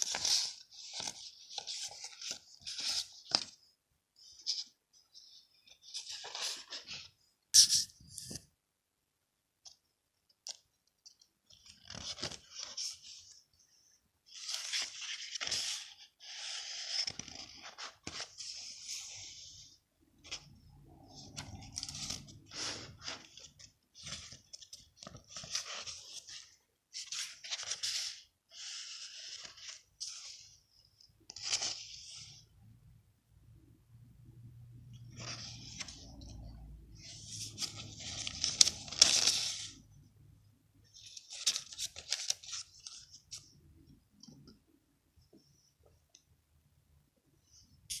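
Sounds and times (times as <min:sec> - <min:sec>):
paper pages rustling: 0:00.0 - 0:08.4, 0:10.4 - 0:13.4, 0:14.3 - 0:30.6, 0:31.2 - 0:32.4, 0:34.9 - 0:39.8, 0:40.9 - 0:43.6.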